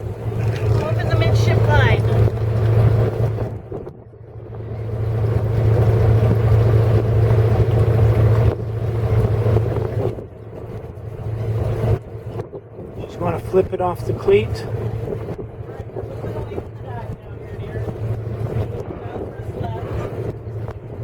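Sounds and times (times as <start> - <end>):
diesel engines idling: 0.0 - 2.6.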